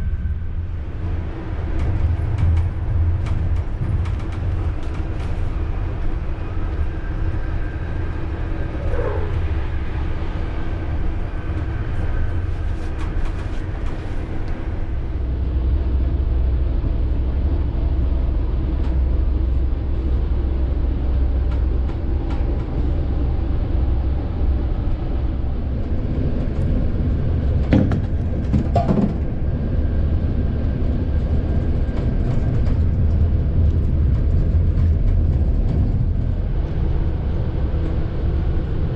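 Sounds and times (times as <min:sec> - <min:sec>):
train wheels rumbling on track: 0:00.0 - 0:38.9
train wheel squeals: 0:07.4 - 0:09.8.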